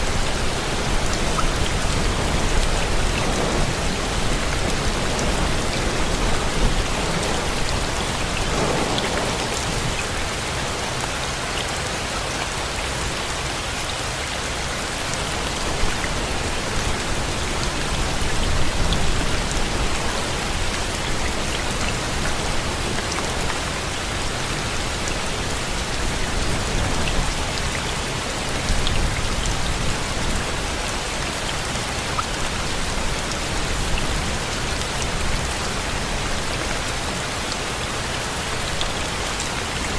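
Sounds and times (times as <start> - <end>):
raindrops pattering on a surface: 0.0 - 39.9
steady rain falling: 0.0 - 39.9.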